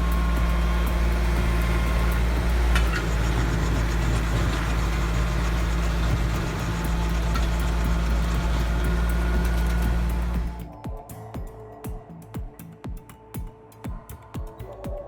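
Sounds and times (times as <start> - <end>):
tractor engine running: 0.0 - 10.6.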